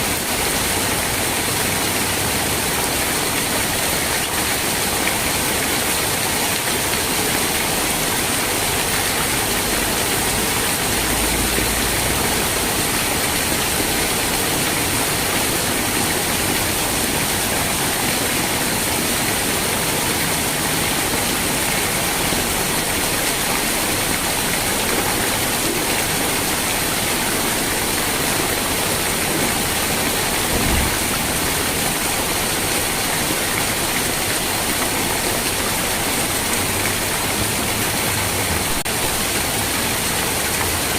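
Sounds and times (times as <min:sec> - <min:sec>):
steady rain hiss: 0:00.0 - 0:40.9
low thump: 0:30.5 - 0:31.2.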